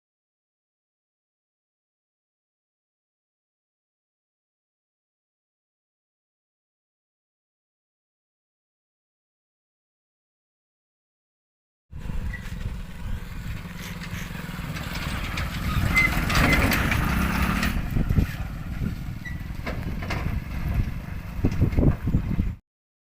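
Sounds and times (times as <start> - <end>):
motor vehicle engine rumbling: 11.9 - 22.6
knocks and rattles: 13.7 - 22.5.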